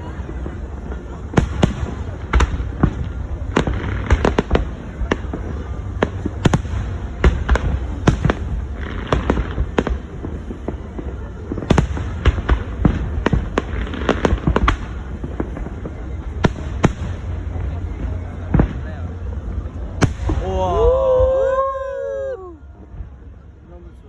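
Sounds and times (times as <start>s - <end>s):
fireworks banging: 0.0s - 21.7s
fireworks crackling: 0.0s - 24.0s.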